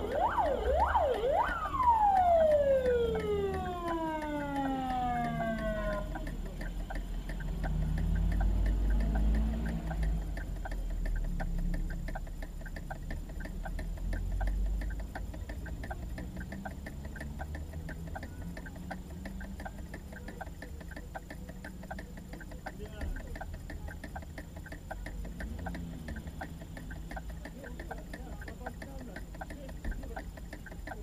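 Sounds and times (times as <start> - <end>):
siren falling in pitch: 0.0 - 6.2
steady ticking: 0.0 - 31.0.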